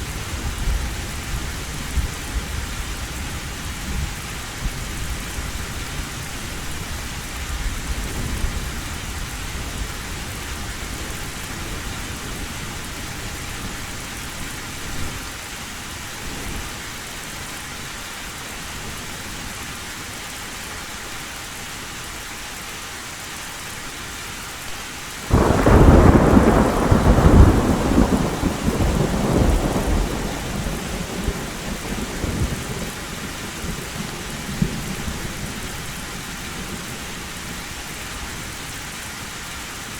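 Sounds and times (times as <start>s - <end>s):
heavy rain on a tin roof: 0.0s - 39.9s
loud thunderclap: 25.3s - 35.1s
low thunder rumbling: 25.3s - 36.0s.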